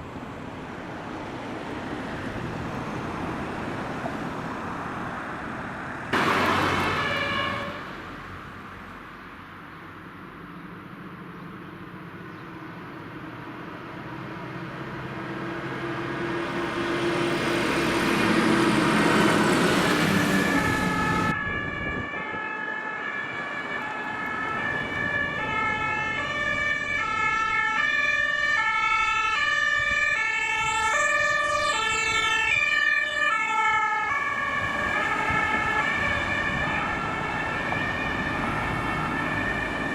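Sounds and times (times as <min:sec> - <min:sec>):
fire engine passing: 0:00.0 - 0:39.9
two-tone siren: 0:06.6 - 0:07.8, 0:18.8 - 0:39.9.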